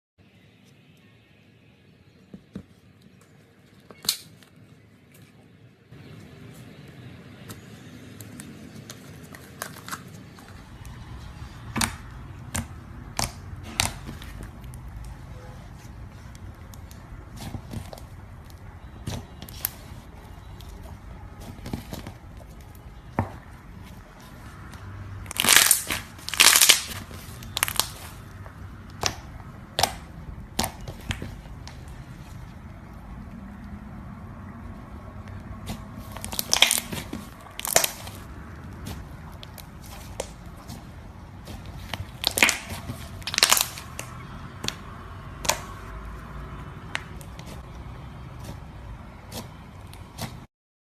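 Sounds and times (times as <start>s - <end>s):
slime squished by hand: 9.5s - 32.4s, 35.6s - 45.9s
sharp slime pops: 28.9s - 31.8s, 42.2s - 44.8s, 45.4s - 45.8s.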